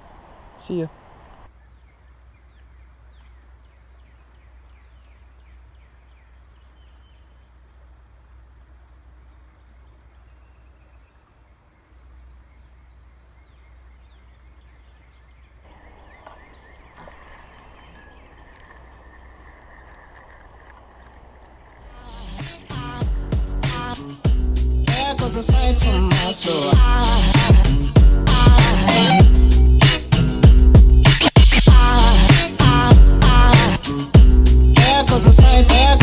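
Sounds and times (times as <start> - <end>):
soft rushing noise: 15.6 - 24.3.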